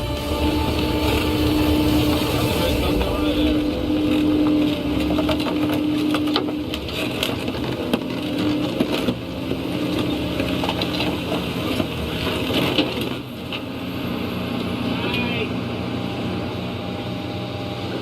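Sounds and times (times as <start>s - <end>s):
cracks clanks and grinding knocks: 0.0s - 13.7s
engine running under load: 0.0s - 18.0s.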